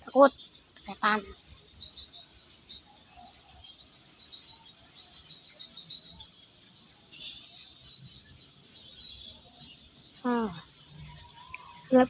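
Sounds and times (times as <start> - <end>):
crickets chirping: 0.0 - 12.0
high insect trill: 0.0 - 12.0.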